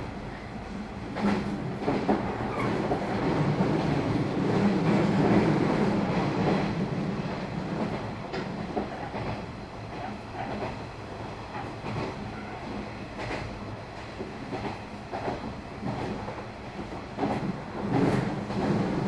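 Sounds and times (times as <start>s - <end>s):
train wheels rumbling: 0.0s - 19.0s.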